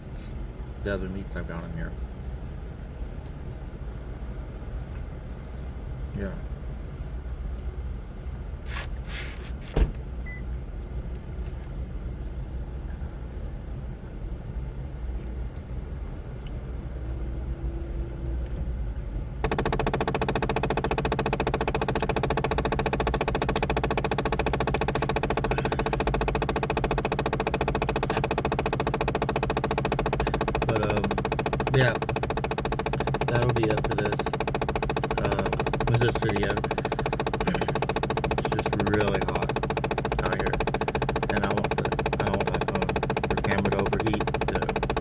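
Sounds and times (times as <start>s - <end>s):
fast-pulsing mechanical hum: 19.1s - 45.0s
sharp clicks: 19.4s - 45.0s.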